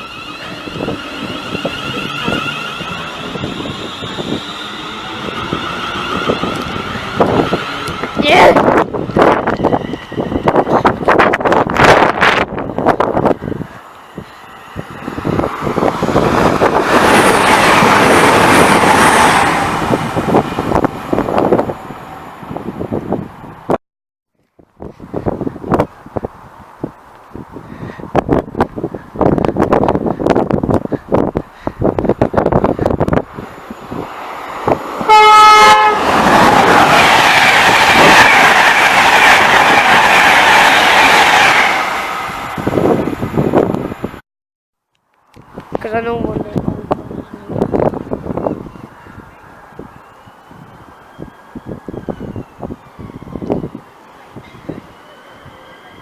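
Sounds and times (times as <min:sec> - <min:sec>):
wheels clicking over rails: 0:00.0 - 0:13.1
train rumble and rail noise: 0:00.0 - 0:23.8, 0:24.4 - 0:44.2, 0:45.1 - 0:56.0
train horn blast: 0:35.0 - 0:36.2.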